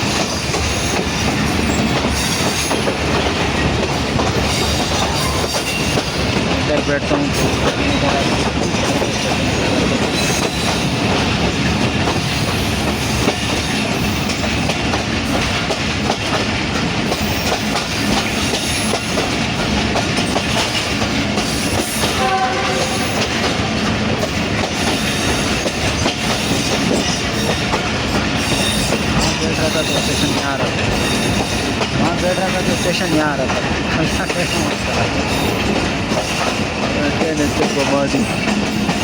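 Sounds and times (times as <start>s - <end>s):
train rumble and wheel clatter: 0.0s - 39.0s
short horn-like tone: 22.2s - 23.1s.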